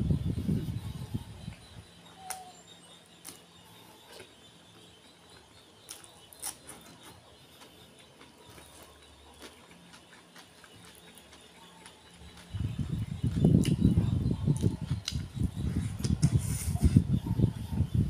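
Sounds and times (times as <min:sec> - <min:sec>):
faint chewing and mouth clicks: 0:05.0 - 0:15.3.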